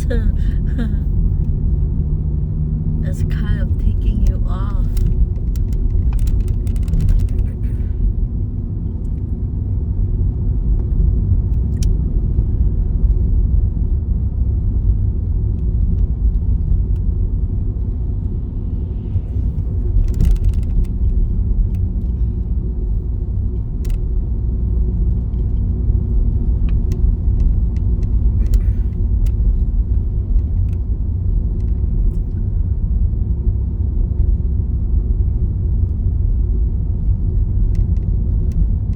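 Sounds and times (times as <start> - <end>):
car driving rumble from cabin: 0.0 - 38.9.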